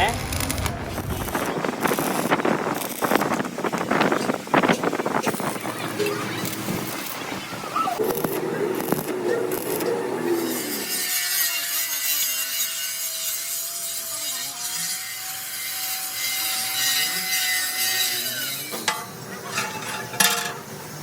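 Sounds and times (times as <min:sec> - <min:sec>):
power tool grinding steel: 0:00.0 - 0:21.0.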